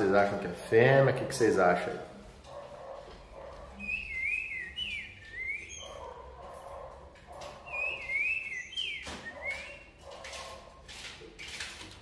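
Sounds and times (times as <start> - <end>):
songbird singing: 3.8 - 6.1, 7.6 - 10.0.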